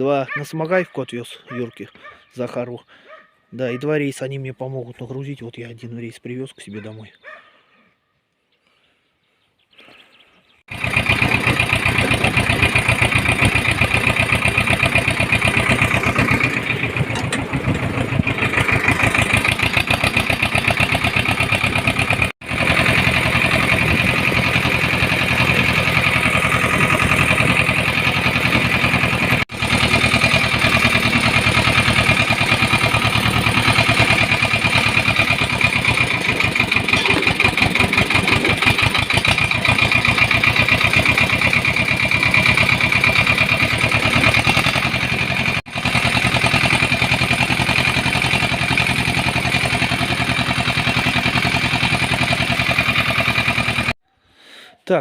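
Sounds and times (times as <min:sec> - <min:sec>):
mini tractor engine running: 0:10.7 - 0:54.0.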